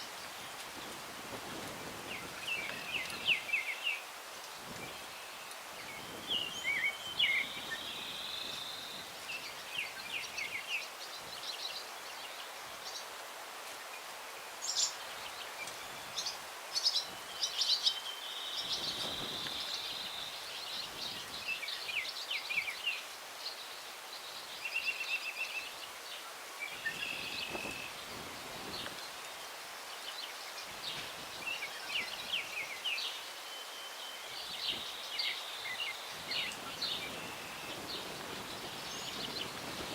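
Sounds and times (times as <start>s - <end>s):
songbirds singing: 0.0s - 13.2s, 13.8s - 39.9s
breeze through tree branches: 0.0s - 39.9s.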